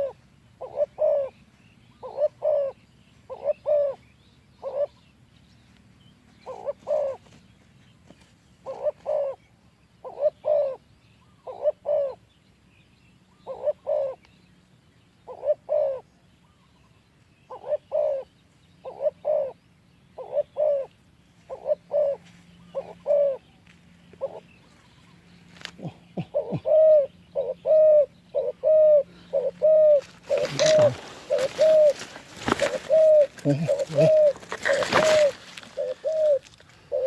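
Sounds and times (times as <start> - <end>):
dove cooing: 0.0 - 4.0, 4.6 - 5.1, 6.4 - 7.4, 8.6 - 12.3, 13.3 - 14.2, 15.2 - 16.1, 17.5 - 19.6, 20.2 - 23.5, 24.1 - 24.6, 25.6 - 37.0.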